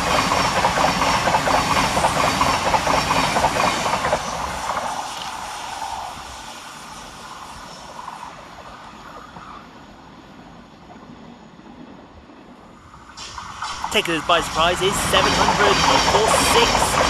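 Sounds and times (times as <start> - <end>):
train wheels clicking over rail joints: 0.0 - 5.4, 13.7 - 17.0.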